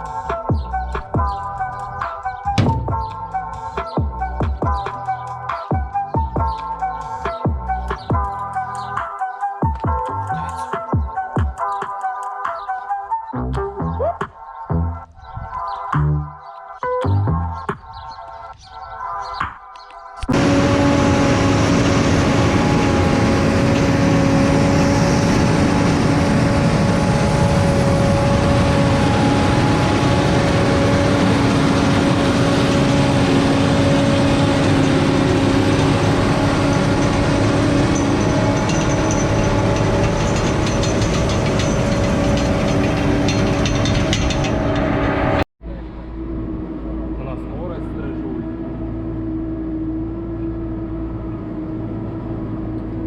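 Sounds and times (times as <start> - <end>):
tractor engine running: 0.0 - 9.0, 20.2 - 53.0
constant hum: 20.2 - 53.0.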